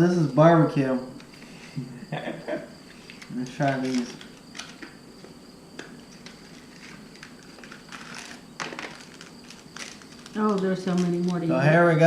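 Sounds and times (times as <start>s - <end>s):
plastic snack packet crinkling: 6.2s - 11.8s.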